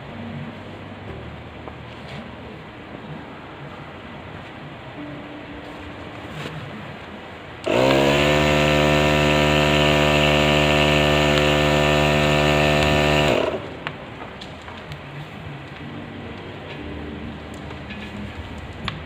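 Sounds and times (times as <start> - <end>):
power tool motor running: 7.6 - 13.7.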